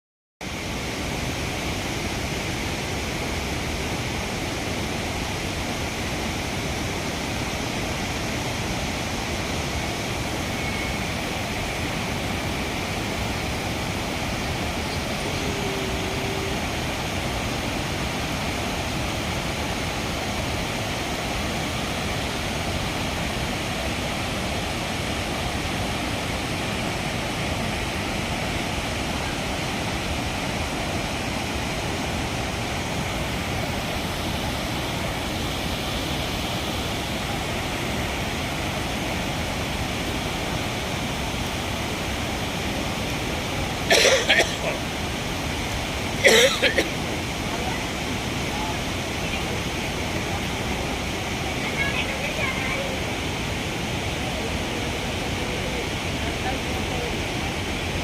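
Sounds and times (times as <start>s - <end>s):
fast-flowing water rushing: 0.4s - 58.0s.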